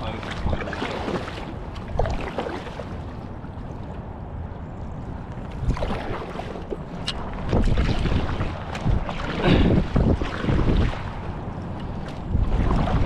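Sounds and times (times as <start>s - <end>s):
paddle splashes: 0.0s - 4.2s, 5.3s - 13.0s
river water splashing: 0.0s - 13.0s
wind on microphone: 4.0s - 13.0s.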